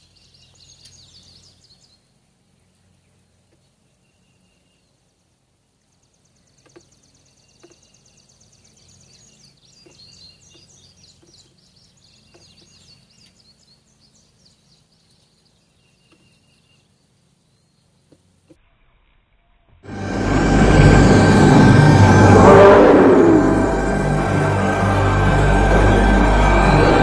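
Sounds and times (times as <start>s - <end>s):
birds chirping and trilling: 0.0s - 18.4s
low background rumble: 19.8s - 27.0s.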